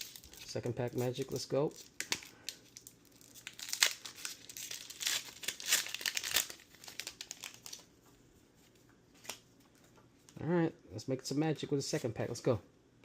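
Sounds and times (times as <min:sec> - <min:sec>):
foil wrapper crinkling and tearing: 0:00.0 - 0:07.9.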